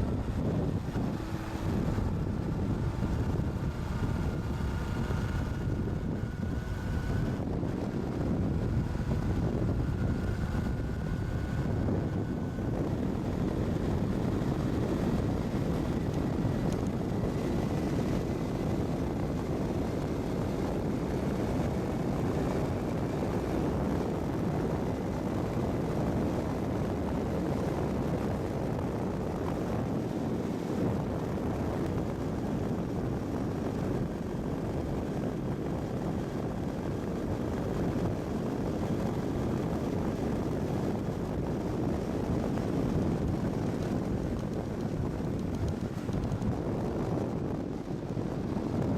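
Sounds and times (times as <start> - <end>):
motorcycle engine running: 0.0 - 48.9
wind and road rushing noise: 0.0 - 48.9.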